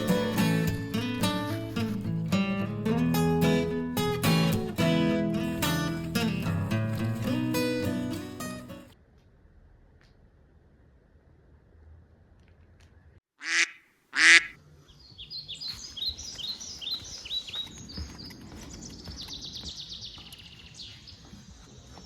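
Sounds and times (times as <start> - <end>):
small birds chirping: 14.2 - 22.0.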